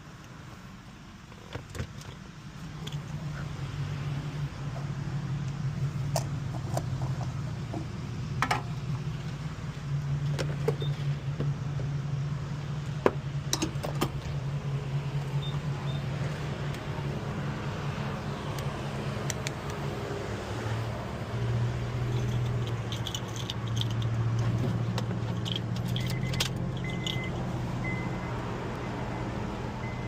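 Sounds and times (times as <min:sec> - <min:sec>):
car engine and road hum: 0:00.0 - 0:30.0
small clicks and rattles: 0:22.1 - 0:27.3.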